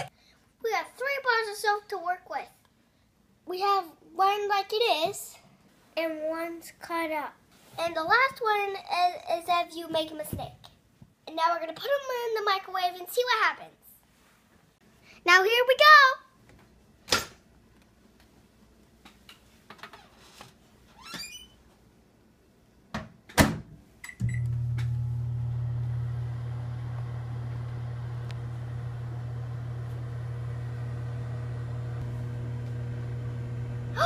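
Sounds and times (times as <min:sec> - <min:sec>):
microwave oven humming: 0:24.1 - 0:34.0.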